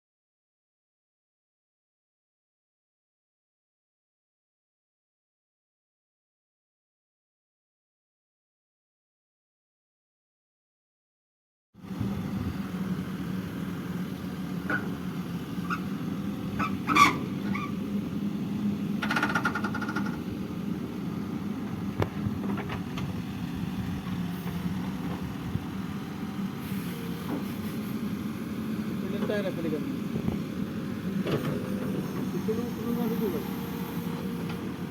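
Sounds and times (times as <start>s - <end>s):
tractor engine running: 11.8s - 34.9s.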